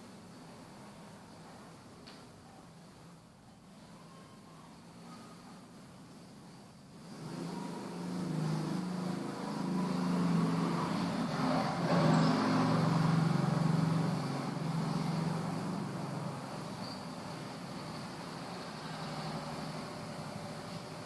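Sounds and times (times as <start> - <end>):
vehicle engine passing by: 7.0 - 21.0.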